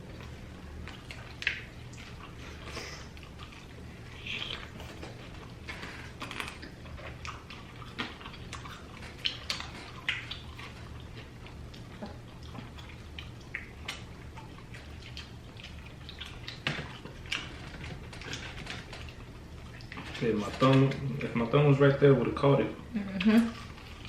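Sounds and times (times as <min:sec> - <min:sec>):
wet chewing: 0:00.0 - 0:21.5
steady low hum: 0:00.0 - 0:24.0
lip smacks: 0:00.9 - 0:17.6.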